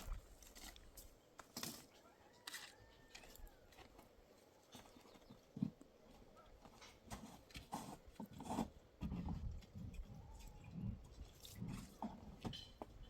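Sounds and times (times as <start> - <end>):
knocks and light clatter: 12.0 - 13.0.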